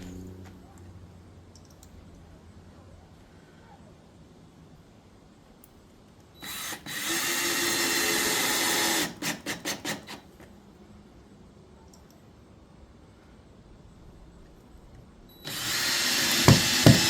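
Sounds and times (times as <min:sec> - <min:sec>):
power drill driving a screw: 0:06.4 - 0:10.3, 0:15.4 - 0:17.0.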